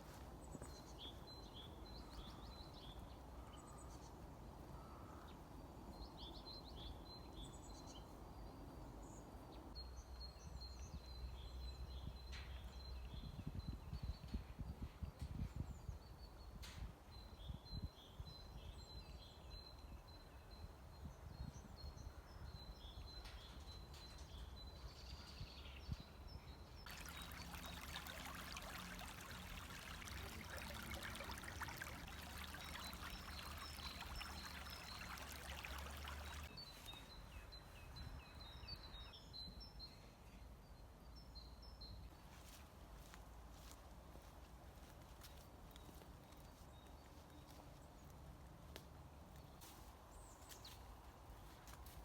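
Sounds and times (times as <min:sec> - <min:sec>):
songbirds chirping: 0:15.1 - 0:52.0
rushing running water: 0:26.9 - 0:36.5.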